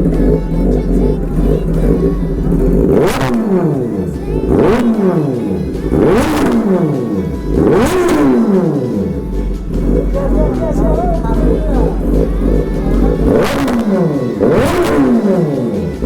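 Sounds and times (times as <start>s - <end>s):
motorcycle engine revving: 0.0s - 16.0s
motorcycle engine running: 0.0s - 16.0s.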